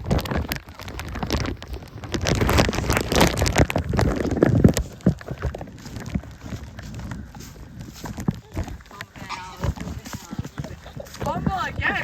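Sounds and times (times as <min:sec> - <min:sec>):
rain: 0:00.0 - 0:07.2
wind buffeting microphone: 0:00.0 - 0:12.0.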